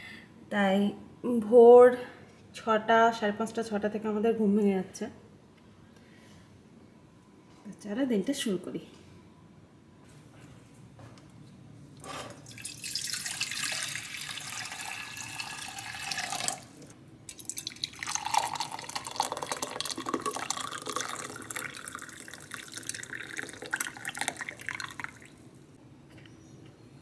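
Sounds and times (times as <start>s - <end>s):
tap water running into sink: 12.4s - 25.3s.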